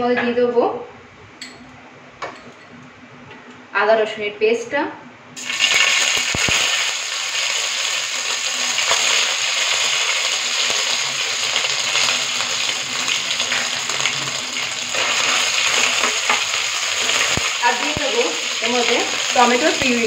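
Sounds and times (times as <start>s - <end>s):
paste sizzling in hot oil: 5.4s - 20.0s.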